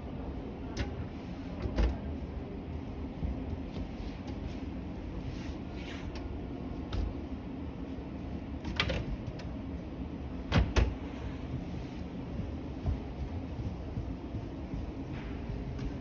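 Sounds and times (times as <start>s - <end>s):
low background hum: 0.0s - 16.0s
washing machine door clicks and knocks: 10.5s - 11.0s.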